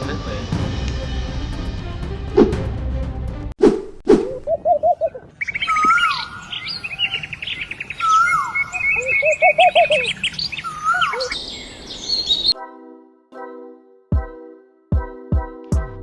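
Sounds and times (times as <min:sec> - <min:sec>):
sustained musical tone: 0:00.0 - 0:03.6
birds chirping and calling: 0:04.6 - 0:12.6.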